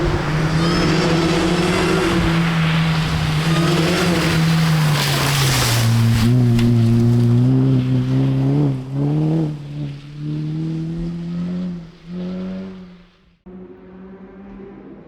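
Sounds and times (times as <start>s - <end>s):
rally car engine running hard: 0.0s - 5.4s.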